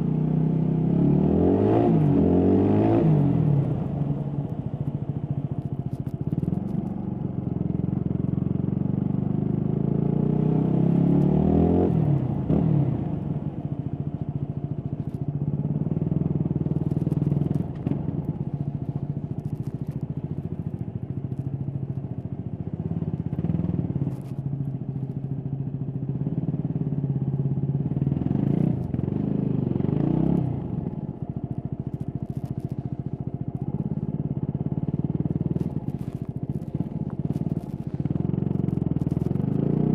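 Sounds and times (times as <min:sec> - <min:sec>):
motorcycle engine revving: 0:00.0 - 0:39.9
microphone rubbing and clicks: 0:31.8 - 0:34.1, 0:35.0 - 0:39.8.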